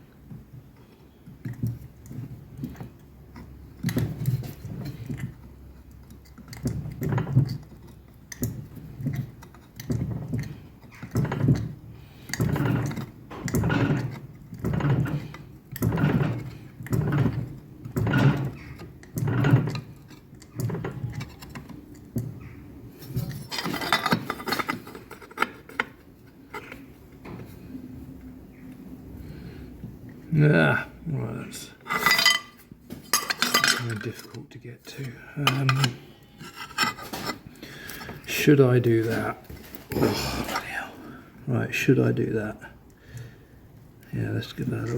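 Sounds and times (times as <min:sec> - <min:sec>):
metallic scraping: 0:31.7 - 0:41.0.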